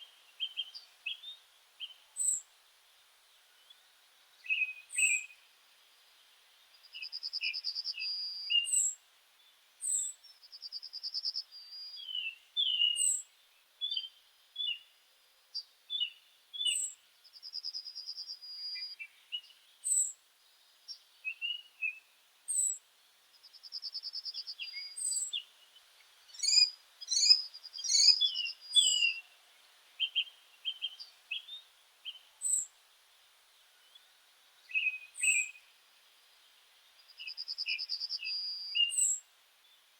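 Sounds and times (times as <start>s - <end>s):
quick lower bird chirps: 26.3s - 29.2s
short high bird chirps: 26.4s - 29.2s, 37.2s - 39.2s.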